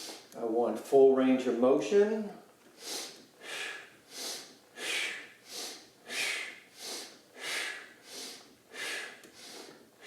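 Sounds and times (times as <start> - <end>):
man breathing hard: 2.8 - 10.0.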